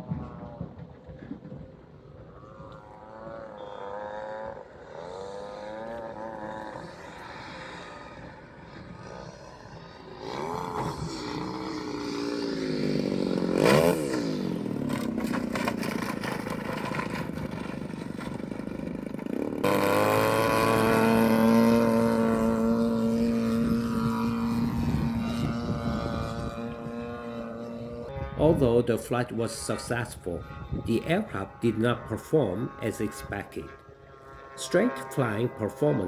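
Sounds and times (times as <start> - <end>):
model plane engine: 0.0 - 36.0.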